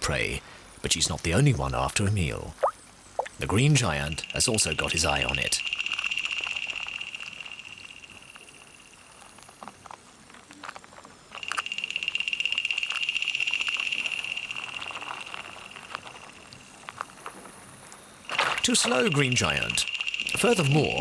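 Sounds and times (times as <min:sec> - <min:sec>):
frog trilling: 0:02.6 - 0:09.1, 0:11.4 - 0:16.8, 0:18.3 - 0:21.0.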